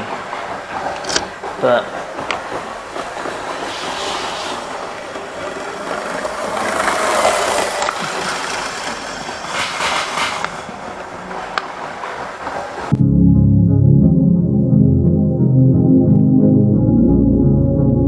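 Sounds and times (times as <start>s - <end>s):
model train running on track: 0.0s - 12.9s.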